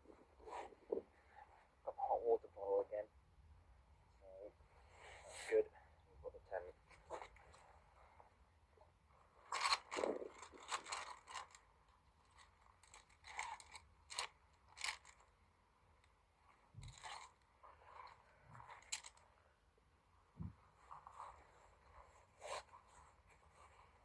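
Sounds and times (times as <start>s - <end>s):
tent bag rustling: 9.5s - 11.6s.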